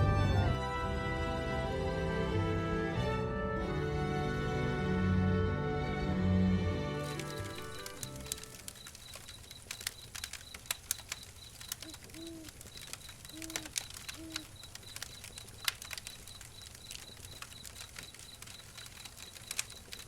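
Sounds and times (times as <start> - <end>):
sharp clicks: 7.0 - 20.0
rapid high pulsing chirp: 7.2 - 20.0.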